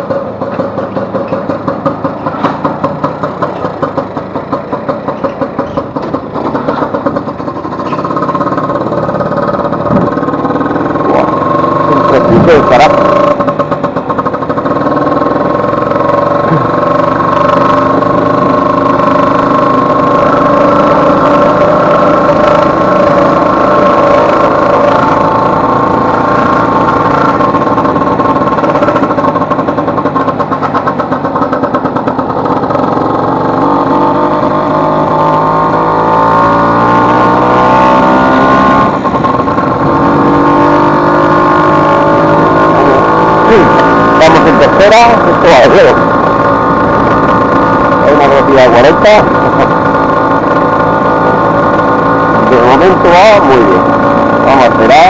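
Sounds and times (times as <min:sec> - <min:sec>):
scooter engine running: 0:00.0 - 0:55.0.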